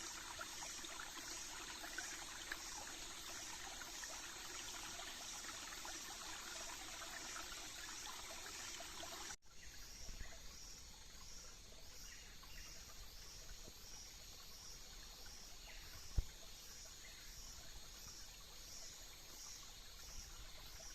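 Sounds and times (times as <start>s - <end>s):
water trickling and pouring: 0.0s - 9.4s
insects chirping: 0.0s - 20.9s.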